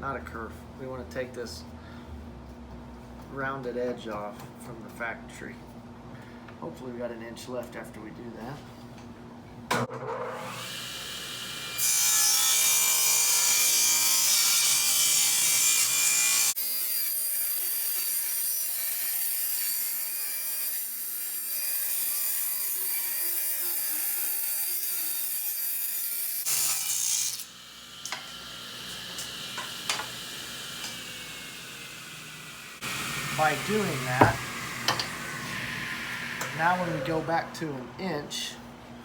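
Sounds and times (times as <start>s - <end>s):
table saw ripping wood: 32.8s - 34.9s.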